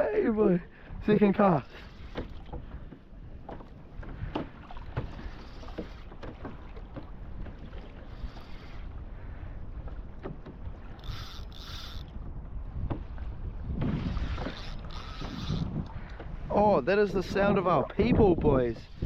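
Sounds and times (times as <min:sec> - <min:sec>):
low rumble of open water: 0:00.0 - 0:19.0
wind buffeting microphone: 0:00.0 - 0:19.0.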